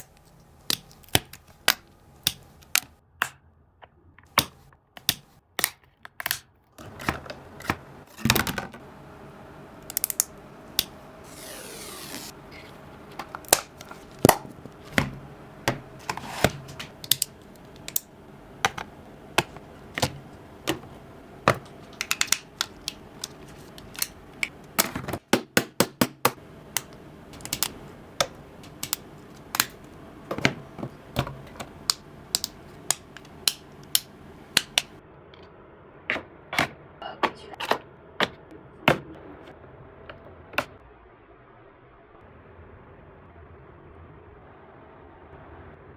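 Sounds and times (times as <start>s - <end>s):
sharp clicks and taps: 0.0s - 7.9s, 13.1s - 35.0s.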